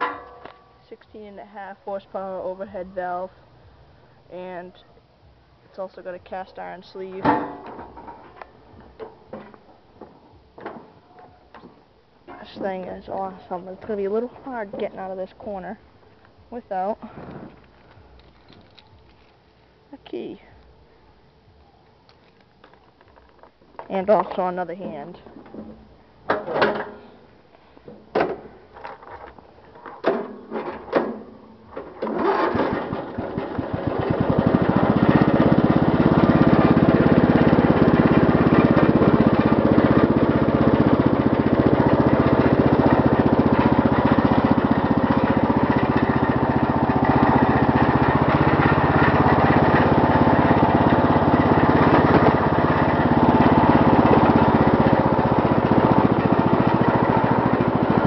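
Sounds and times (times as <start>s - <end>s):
riding mower engine starting: 30.0s - 58.0s.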